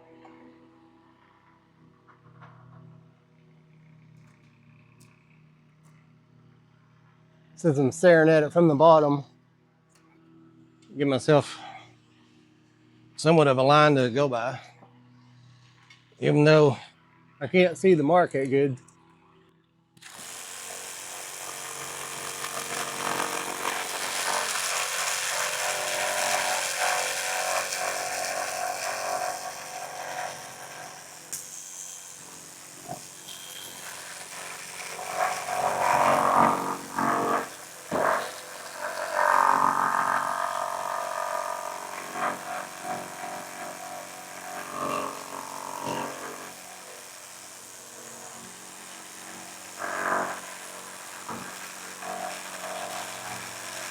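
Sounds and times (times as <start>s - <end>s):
reciprocating saw cutting wood: 20.0s - 53.9s.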